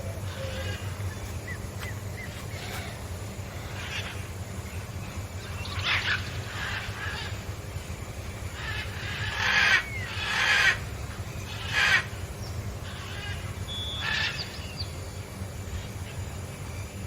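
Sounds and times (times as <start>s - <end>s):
harsh animal calls: 0.0s - 4.4s, 5.4s - 7.6s, 8.5s - 12.2s
steady low hum: 0.0s - 17.0s.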